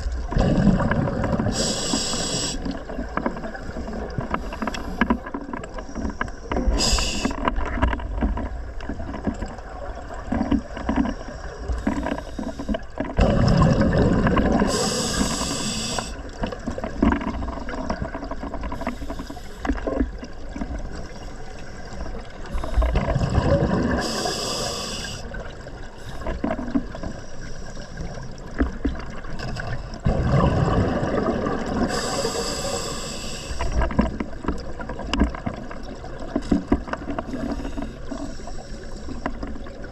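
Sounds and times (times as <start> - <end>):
exhaled bubbles gurgling: 0.0 - 39.9
regulator air hiss: 1.6 - 2.8, 6.7 - 7.4, 14.7 - 16.2, 24.0 - 25.3, 31.9 - 33.7.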